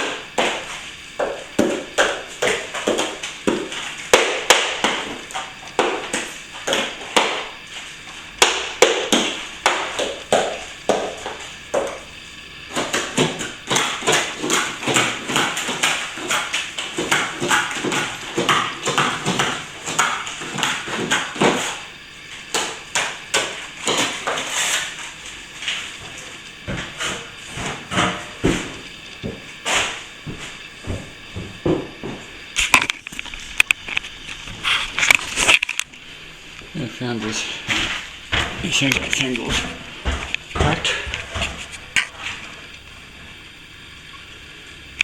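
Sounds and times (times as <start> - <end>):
hand tool scraping plaster: 12.7 - 21.9, 22.5 - 28.7.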